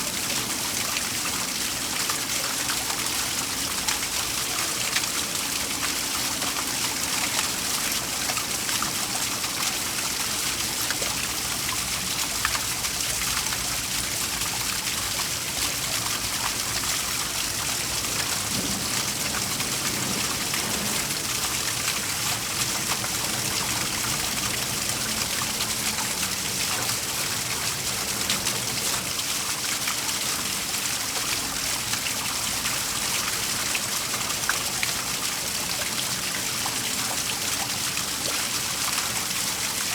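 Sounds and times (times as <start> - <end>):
water splashes: 0.0 - 39.9
waterfall rushing: 14.6 - 32.9.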